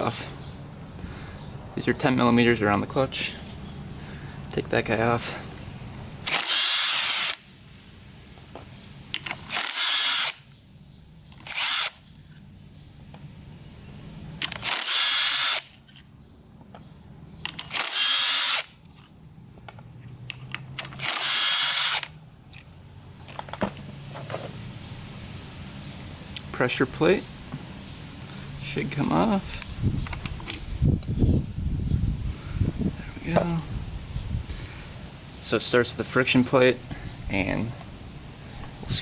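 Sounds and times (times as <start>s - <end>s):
power drill spinning bolts: 9.2s - 10.4s, 14.4s - 15.7s, 17.5s - 18.7s, 20.8s - 22.2s.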